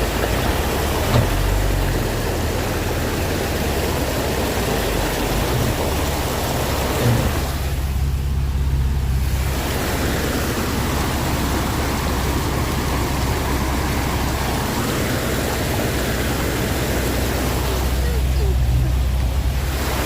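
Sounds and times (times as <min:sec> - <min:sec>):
low engine hum: 0:00.0 - 0:20.0
rain: 0:00.0 - 0:20.0
water rushing: 0:00.0 - 0:20.0.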